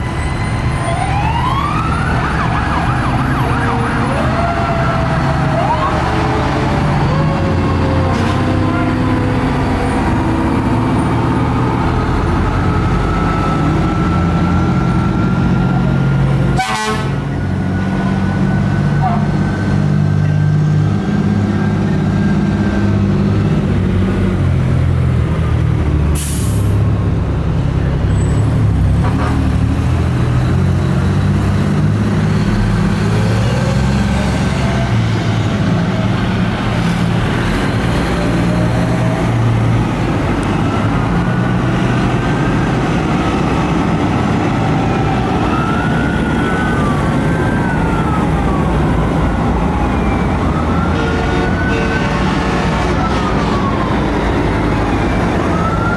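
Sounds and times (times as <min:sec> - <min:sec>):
faint sirens wailing: 0:00.0 - 0:26.2, 0:26.8 - 0:55.9
diesel engines rumbling: 0:00.0 - 0:55.9
air brake hiss: 0:26.2 - 0:26.8.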